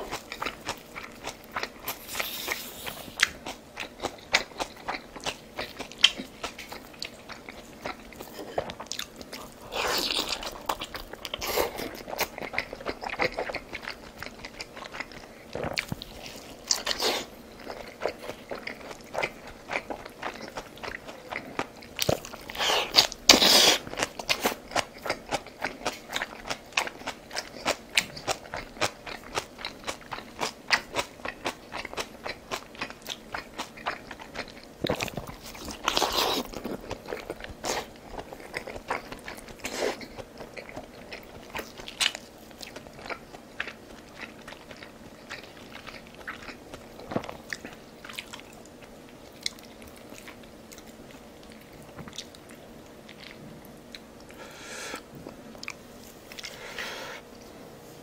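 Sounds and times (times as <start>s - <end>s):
person chewing and crunching food: 0.0s - 57.6s.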